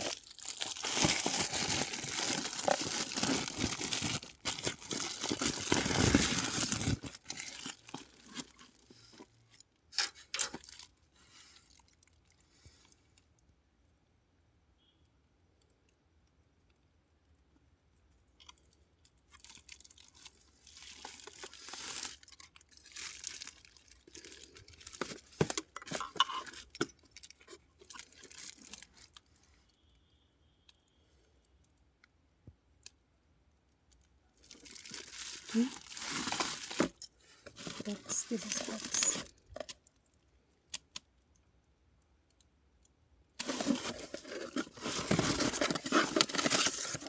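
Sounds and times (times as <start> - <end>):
packaging crinkling and rustling: 0.0 - 9.3, 10.4 - 10.9, 19.3 - 29.3, 34.4 - 40.0, 43.4 - 47.0.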